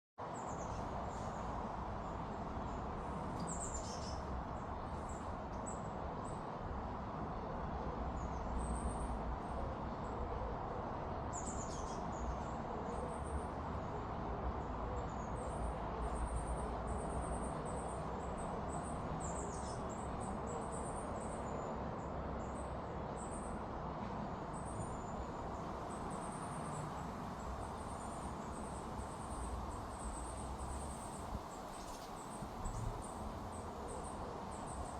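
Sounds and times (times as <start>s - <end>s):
small birds chirping: 27.6s - 34.9s.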